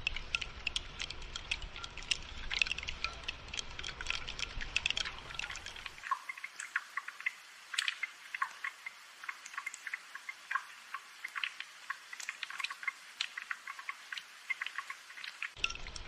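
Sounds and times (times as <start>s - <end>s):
rain drops pattering: 0.0s - 16.0s.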